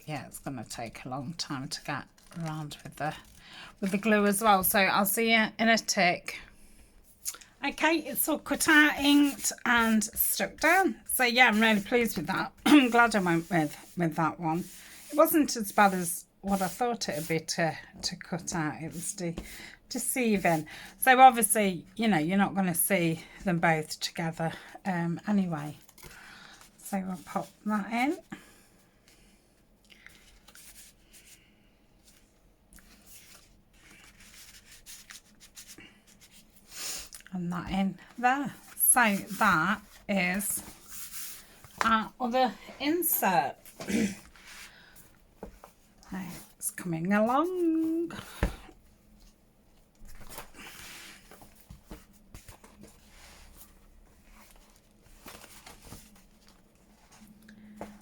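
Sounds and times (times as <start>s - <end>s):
paper and card rustling: 1.2s - 4.4s, 8.1s - 17.4s, 30.1s - 31.4s, 32.0s - 36.6s, 38.0s - 42.2s, 50.0s - 58.0s
paper rustling: 1.7s - 4.1s, 32.0s - 36.5s, 49.9s - 58.0s.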